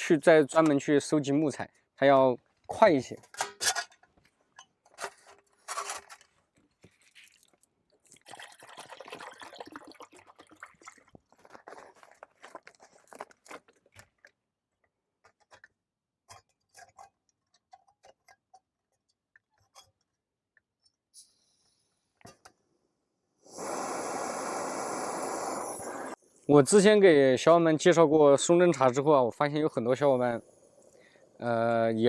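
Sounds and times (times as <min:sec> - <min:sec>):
camping gear clicks and clinks: 0:03.1 - 0:07.1, 0:10.9 - 0:20.2.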